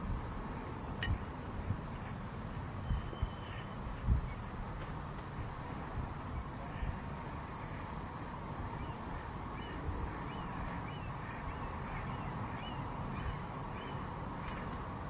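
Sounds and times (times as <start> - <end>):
background rush with low rumble: 0.0 - 15.0
bird calling: 8.8 - 14.8.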